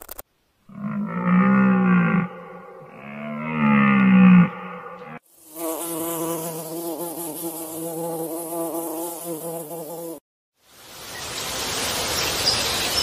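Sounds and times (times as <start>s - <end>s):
low falling animal call: 0.7s - 5.2s
insect buzzing: 5.1s - 10.2s.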